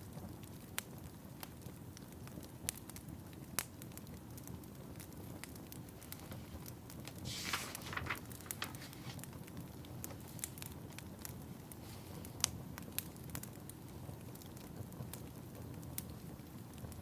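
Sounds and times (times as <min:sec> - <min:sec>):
wood fire crackling: 0:00.0 - 0:17.0
low steady rumble: 0:07.3 - 0:08.9.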